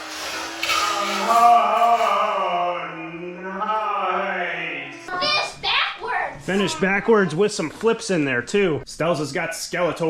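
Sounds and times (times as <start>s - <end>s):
man singing long held notes: 0.7s - 5.1s.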